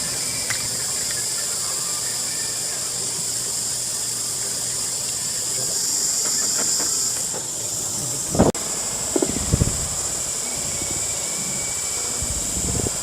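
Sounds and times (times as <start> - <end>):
steady high-pitched hiss: 0.0 - 13.0.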